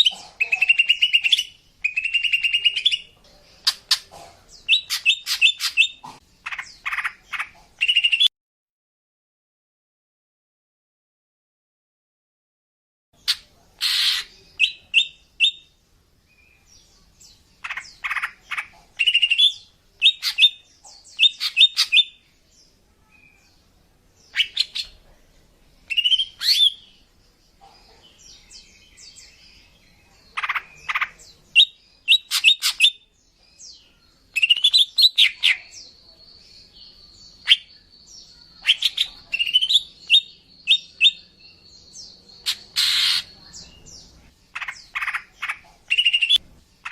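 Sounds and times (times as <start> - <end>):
bird chirping rapidly: 0.0 - 4.0, 4.6 - 8.3, 13.2 - 15.7, 17.6 - 22.2, 25.9 - 27.0, 30.4 - 33.1, 34.3 - 35.8, 37.0 - 46.9.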